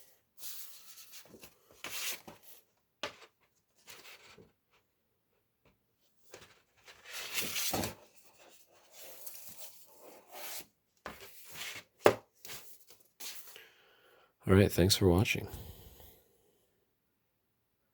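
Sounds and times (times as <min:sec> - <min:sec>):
paper and cardboard rustling: 0:00.4 - 0:04.8, 0:06.2 - 0:13.6.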